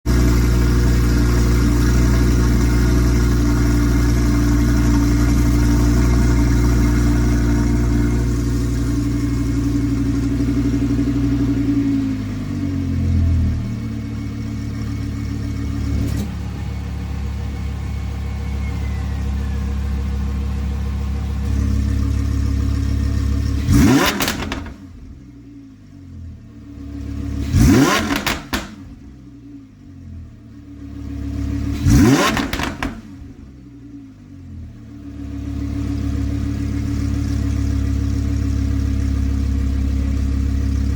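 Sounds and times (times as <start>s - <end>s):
exhaust pops and crackles: 0.0s - 11.1s, 23.4s - 24.8s, 27.4s - 29.0s, 31.8s - 33.1s
engine revving: 0.0s - 25.2s, 26.6s - 29.6s, 30.7s - 33.5s
car engine idling: 0.0s - 40.9s.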